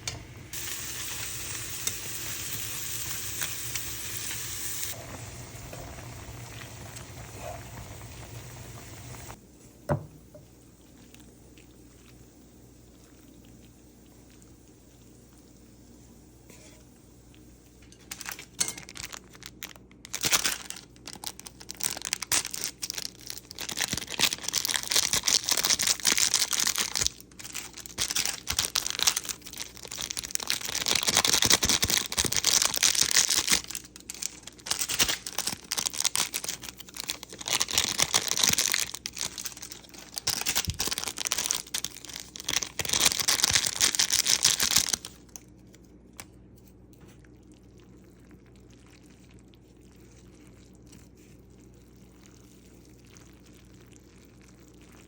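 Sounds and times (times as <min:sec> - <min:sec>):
packaging crinkling and rustling: 0:18.1 - 0:46.2.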